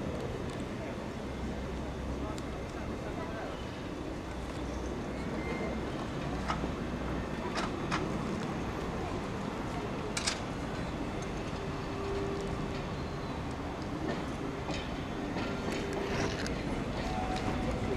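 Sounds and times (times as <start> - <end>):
train rumbling on track: 0.0 - 17.9.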